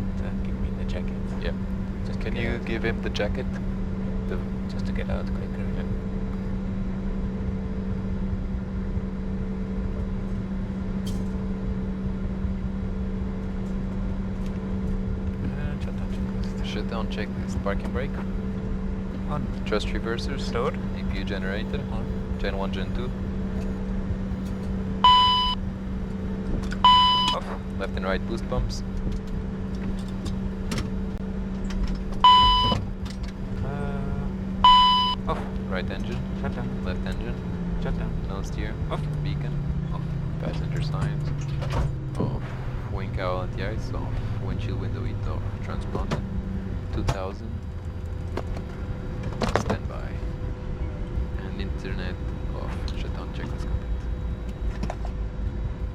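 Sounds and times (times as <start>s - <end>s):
jet engines idling: 0.0s - 55.9s
electronic beep: 25.1s - 25.6s, 26.8s - 27.4s, 32.2s - 32.8s, 34.6s - 35.3s.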